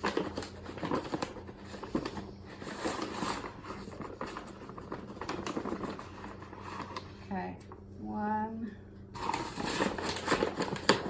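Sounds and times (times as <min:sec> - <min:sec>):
powder scraping and rustling: 0:09.2 - 0:11.0.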